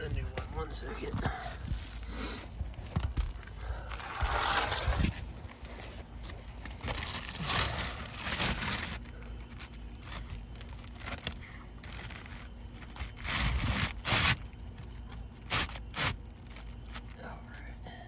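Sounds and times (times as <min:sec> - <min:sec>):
roofing shingles scraping: 0:02.8 - 0:17.1.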